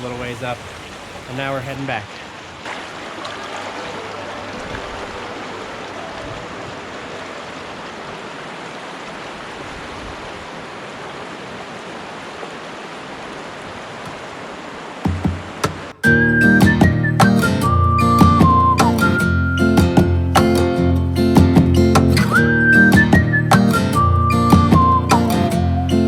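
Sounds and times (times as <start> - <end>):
river water flowing over rocks: 0.0 - 16.0.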